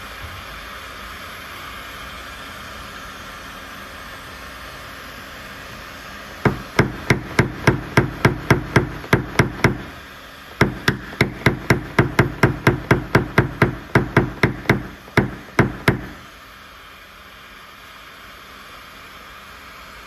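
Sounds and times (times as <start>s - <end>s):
hammer tapping on sheet metal: 6.5s - 10.0s, 10.6s - 16.2s.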